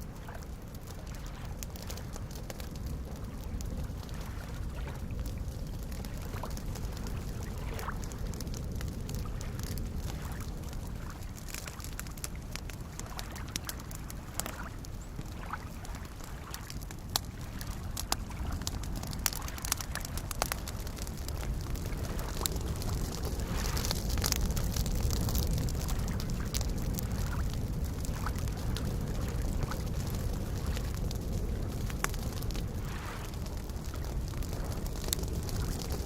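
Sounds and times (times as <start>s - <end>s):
campfire crackling and popping: 0.0s - 36.0s
lake waves lapping: 0.1s - 36.0s.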